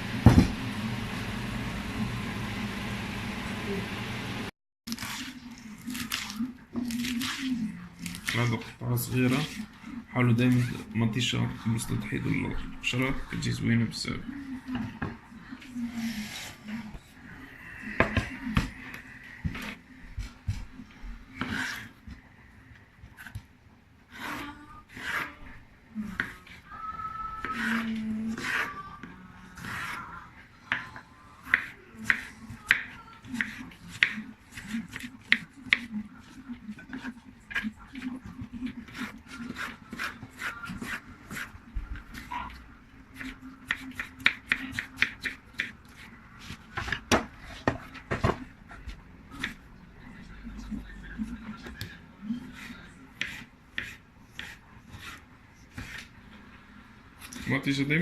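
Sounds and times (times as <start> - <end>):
knife on wooden cutting board: 52.6 - 56.1
scraping tomato skin by hand: 52.6 - 56.1.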